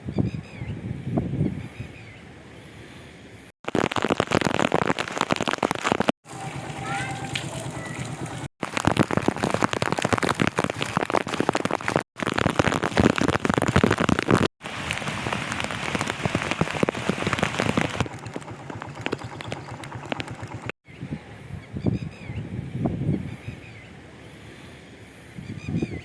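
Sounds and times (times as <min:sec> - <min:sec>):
heavy rain falling: 0:03.6 - 0:20.7.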